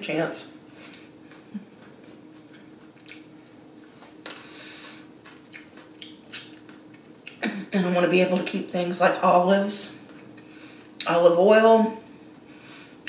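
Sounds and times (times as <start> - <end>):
steady low hum: 0.0 - 13.0
lip smacks: 1.3 - 3.3, 5.2 - 7.4
wet chewing and mouth clicks: 1.3 - 4.4, 5.2 - 7.4.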